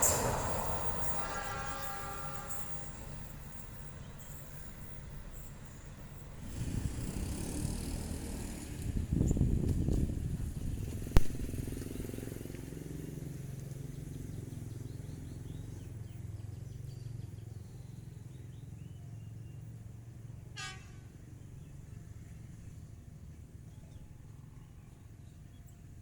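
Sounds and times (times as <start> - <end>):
brief high train toot: 0.0 - 3.4
train rumble and engine drone: 0.0 - 26.0.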